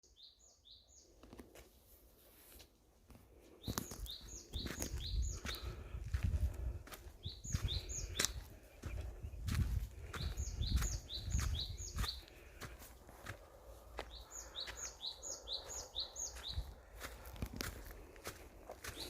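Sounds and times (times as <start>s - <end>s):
bird chirping: 0.0s - 1.2s, 3.6s - 5.8s, 7.2s - 12.3s, 14.1s - 17.1s
footsteps on path: 1.2s - 19.0s.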